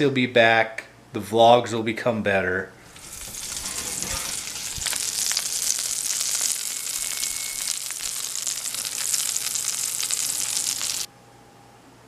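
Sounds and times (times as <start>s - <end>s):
food sizzling in a skillet: 2.8s - 11.1s.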